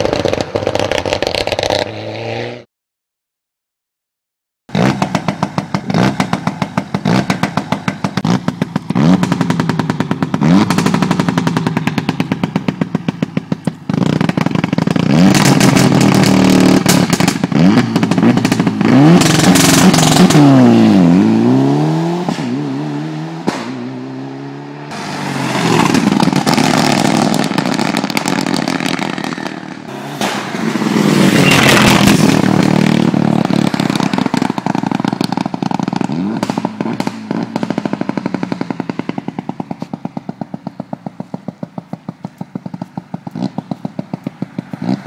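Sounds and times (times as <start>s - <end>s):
rally car engine revving: 4.7s - 13.2s, 13.9s - 39.7s
sharp exhaust pops: 4.7s - 20.5s, 25.8s - 45.0s.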